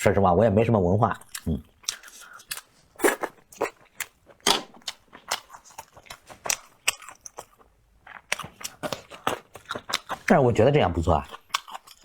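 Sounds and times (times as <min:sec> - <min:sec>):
chewing crunchy food: 0:01.1 - 0:12.0
wet mouth clicks: 0:01.2 - 0:10.3.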